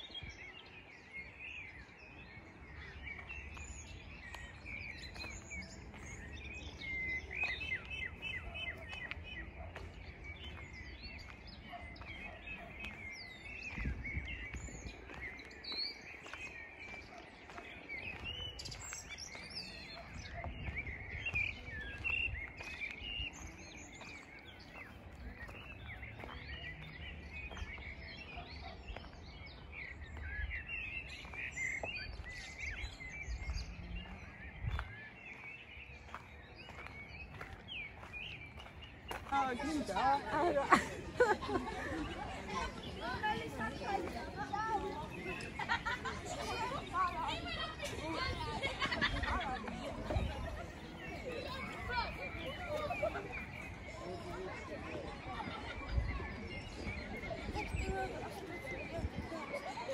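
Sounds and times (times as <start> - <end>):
songbirds chirping and singing: 0.0 - 59.9.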